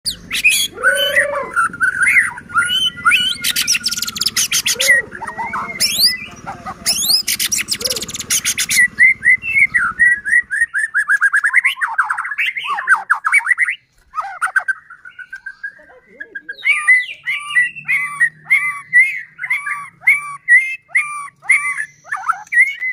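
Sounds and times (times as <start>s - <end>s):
songbird singing: 0.0s - 22.9s
dry bird rattling: 0.1s - 11.6s.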